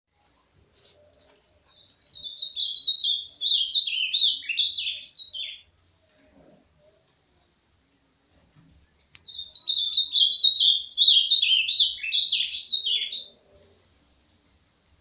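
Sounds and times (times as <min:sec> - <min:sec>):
songbird singing: 0:00.7 - 0:06.2, 0:08.7 - 0:13.8.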